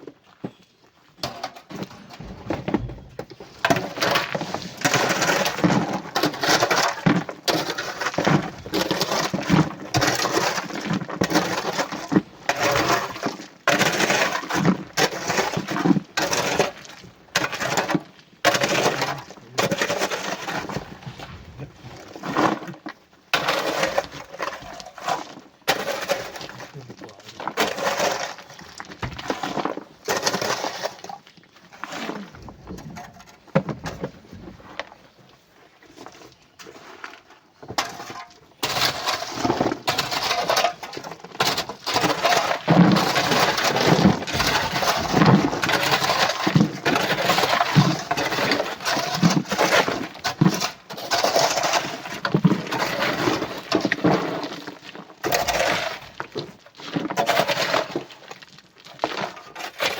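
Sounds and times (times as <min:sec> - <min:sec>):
sand and rock crunching into truck: 0:01.9 - 0:06.1, 0:20.3 - 0:22.7.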